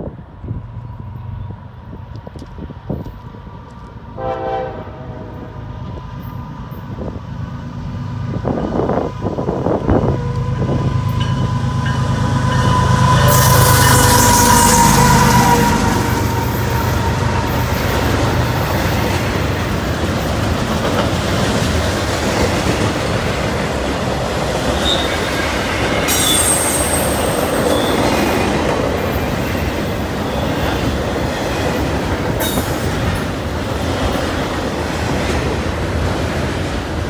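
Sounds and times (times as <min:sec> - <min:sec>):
train wheels rumbling on rail: 0:00.0 - 0:37.0
high wheel squeals: 0:11.0 - 0:18.1, 0:24.7 - 0:28.4, 0:29.0 - 0:31.0.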